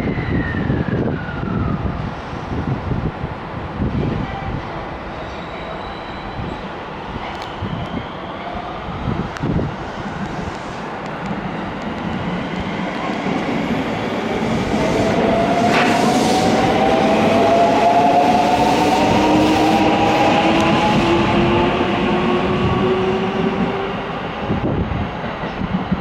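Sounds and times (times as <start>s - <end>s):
rising whine of train: 0.0s - 26.0s
train running: 9.1s - 26.0s.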